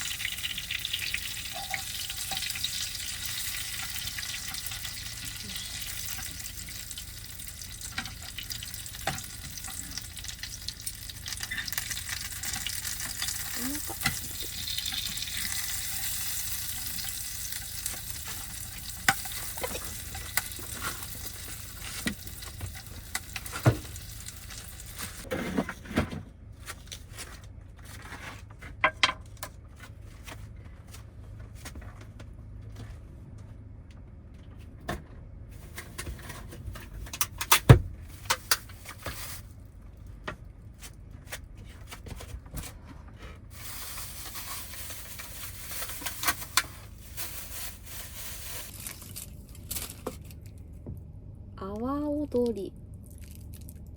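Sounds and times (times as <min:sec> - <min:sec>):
chicken sizzling in oil: 0:00.0 - 0:25.3.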